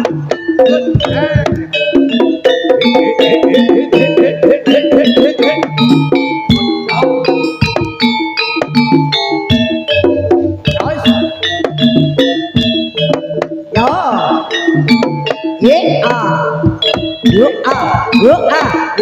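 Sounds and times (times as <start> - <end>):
drums: 0.0 - 19.0
struck pitched notes: 9.8 - 13.9.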